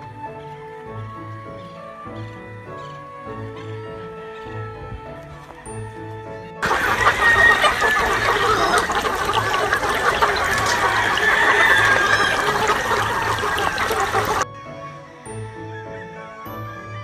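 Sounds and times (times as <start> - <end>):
faint background music: 0.0 - 17.0
chickens clucking: 6.6 - 14.4.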